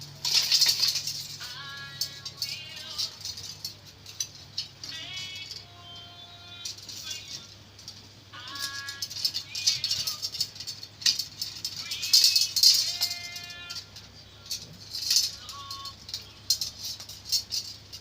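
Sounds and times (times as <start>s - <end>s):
background music: 0.0s - 18.0s
metal spokes clinking: 0.0s - 18.0s.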